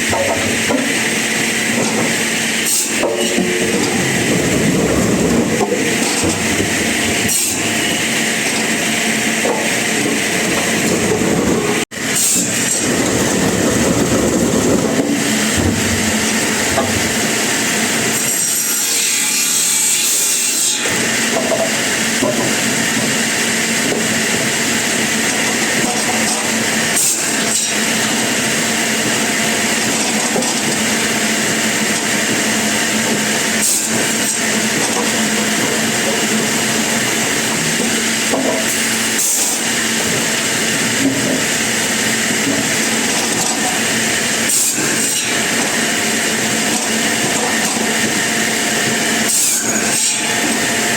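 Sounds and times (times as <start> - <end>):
saw cutting through wood: 0.0 - 11.0, 12.0 - 13.5, 14.3 - 50.9
motor hum: 0.0 - 11.8.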